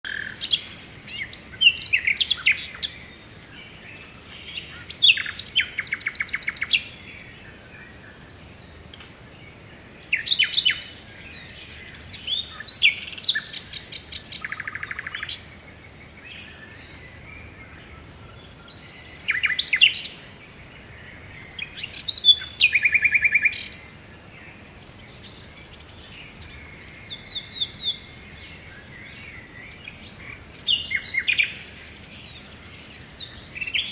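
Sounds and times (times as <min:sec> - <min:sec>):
songbirds singing: 0:00.0 - 0:33.9.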